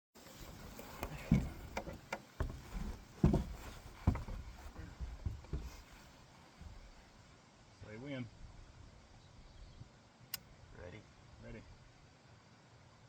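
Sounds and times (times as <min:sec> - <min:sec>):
knocks and thumps: 0:00.5 - 0:07.0.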